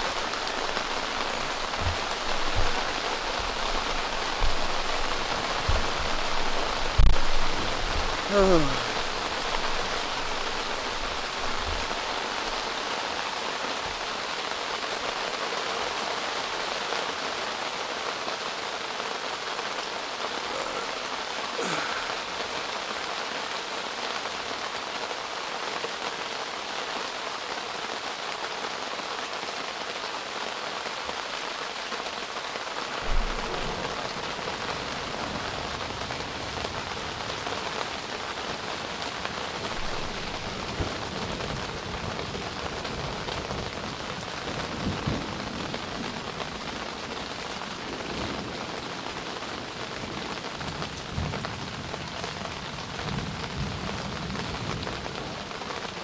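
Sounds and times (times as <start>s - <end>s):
rain pattering on a tent: 0.0s - 56.0s
short low thump: 1.4s - 6.4s.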